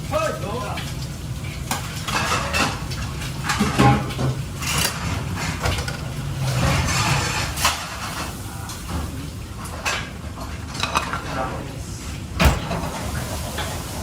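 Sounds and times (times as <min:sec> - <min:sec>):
metal utensils clinking and scraping: 0:01.7 - 0:10.1.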